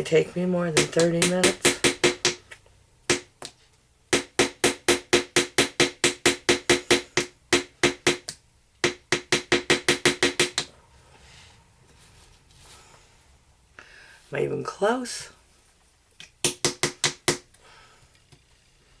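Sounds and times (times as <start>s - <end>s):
hammer tapping a chisel: 0.7s - 2.4s, 3.1s - 10.7s.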